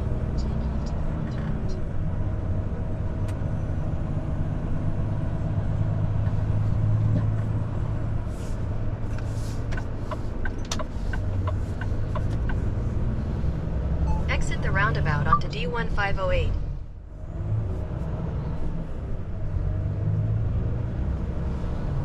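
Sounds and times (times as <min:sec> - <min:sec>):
truck diesel engine droning: 0:00.0 - 0:22.0
turn indicator ticking: 0:09.6 - 0:13.1.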